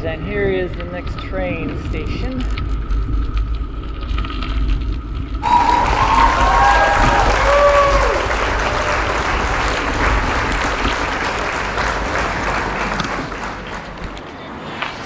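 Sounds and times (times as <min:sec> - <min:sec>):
wind buffeting microphone: 0:05.4 - 0:14.2.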